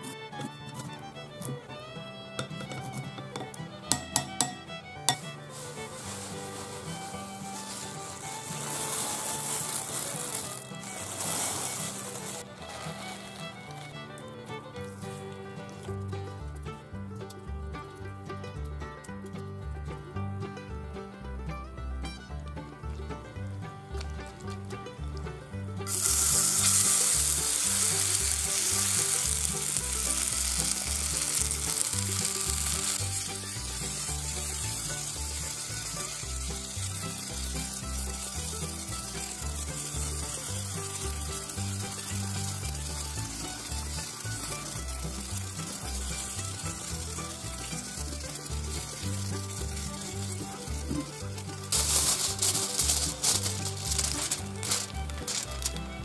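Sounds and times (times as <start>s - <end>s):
batter sizzling in hot oil: 2.4s - 15.2s, 25.8s - 55.9s.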